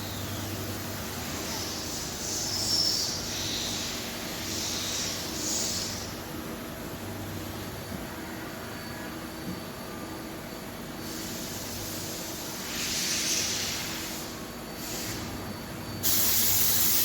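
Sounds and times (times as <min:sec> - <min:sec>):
hiss of spray or air: 0:01.1 - 0:06.1, 0:11.0 - 0:15.4, 0:16.0 - 0:17.0.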